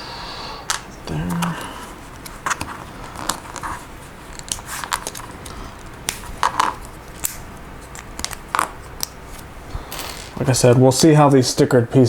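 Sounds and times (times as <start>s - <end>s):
plastic pieces clicking and clattering: 4.3s - 9.2s.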